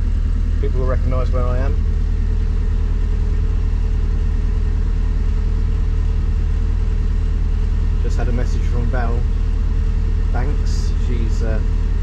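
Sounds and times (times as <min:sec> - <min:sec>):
boat engine throbbing: 0:00.0 - 0:12.0.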